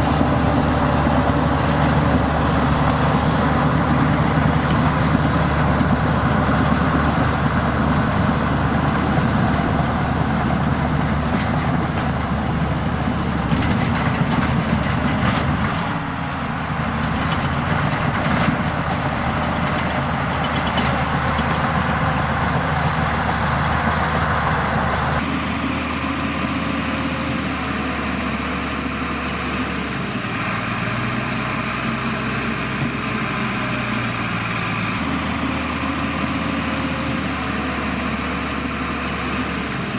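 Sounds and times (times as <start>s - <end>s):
heavy machinery diesel engines: 0.0s - 39.9s
metal clanks and knocks: 10.4s - 22.0s.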